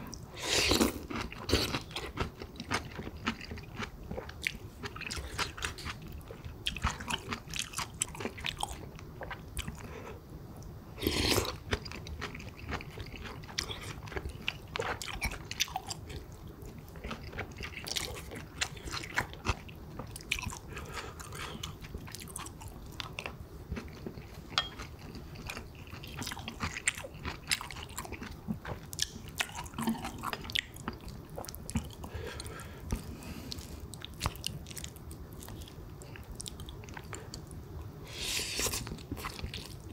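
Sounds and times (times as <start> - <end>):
chewing with wet mouth clicks: 11.7 - 37.6.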